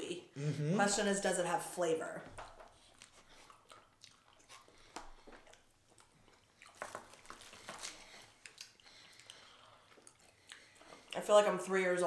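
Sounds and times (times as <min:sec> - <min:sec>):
people chewing: 0:02.3 - 0:11.6
wet mouth clicks: 0:02.4 - 0:07.6, 0:08.2 - 0:11.2.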